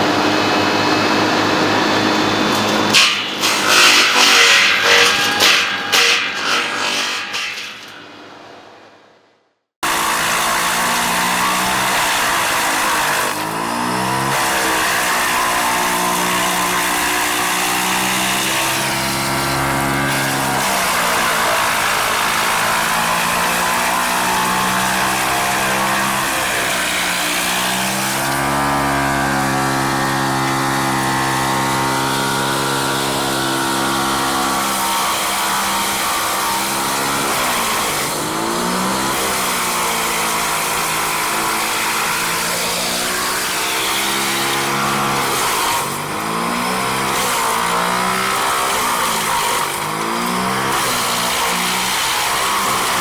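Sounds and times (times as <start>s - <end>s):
engine running under changing load: 0.0s - 8.7s.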